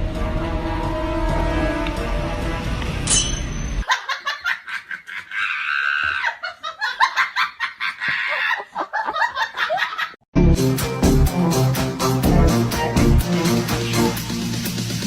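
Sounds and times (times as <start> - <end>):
person laughing hard: 3.8 - 10.2
background music: 10.4 - 15.0.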